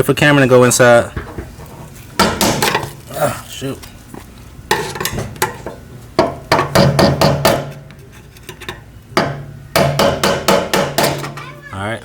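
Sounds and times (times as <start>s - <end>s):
hammer striking metal: 6.2s - 7.8s, 9.2s - 11.4s.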